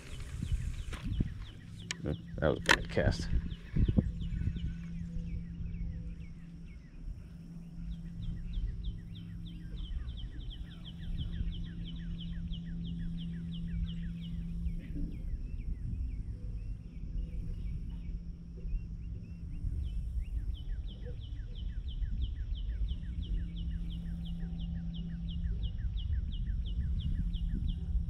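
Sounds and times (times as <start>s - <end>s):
low hum: 0.0s - 28.0s
low wind rumble: 0.0s - 28.0s.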